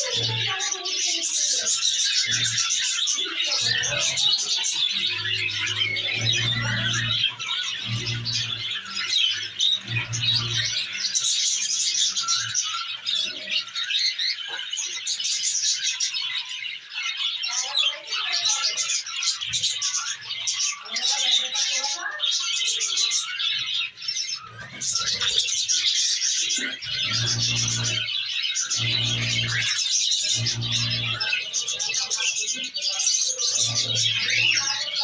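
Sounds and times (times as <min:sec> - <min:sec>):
budgerigars chattering and chirping: 0:00.0 - 0:35.0
low hum: 0:28.7 - 0:31.3.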